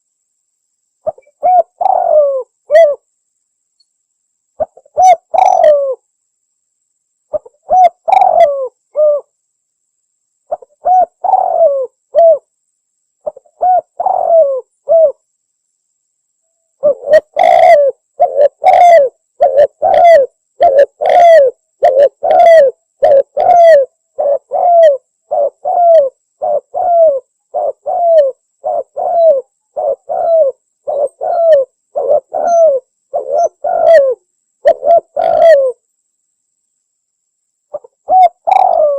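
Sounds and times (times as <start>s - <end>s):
dove cooing: 1.0s - 3.0s, 4.6s - 6.0s, 7.3s - 9.3s, 10.5s - 12.5s, 13.2s - 15.2s, 16.8s - 35.8s, 37.7s - 38.9s.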